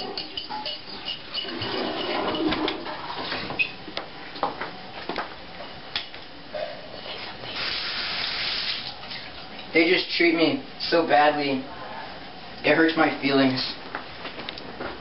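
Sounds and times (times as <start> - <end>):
rushing water hissing: 7.5 - 8.9.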